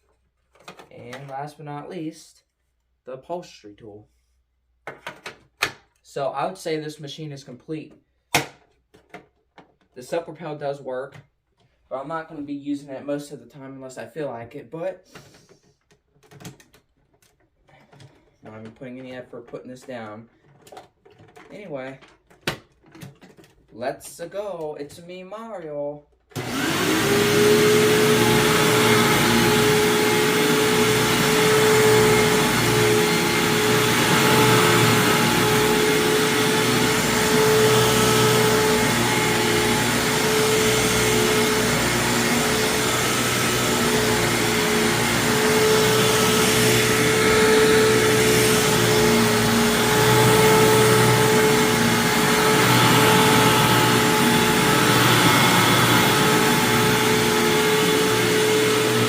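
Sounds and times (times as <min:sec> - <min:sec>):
vacuum cleaner running: 0:26.3 - 0:59.0.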